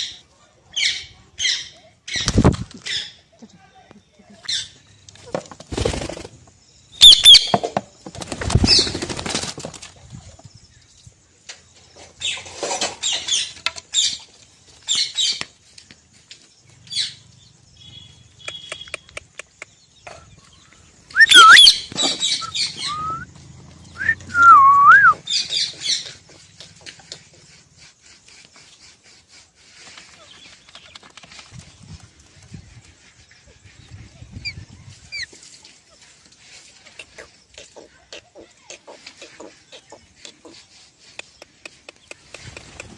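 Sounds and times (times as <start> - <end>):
parrot chirping: 7.0 - 7.6, 21.2 - 23.2
parrot whistling: 21.2 - 21.8, 22.4 - 23.2.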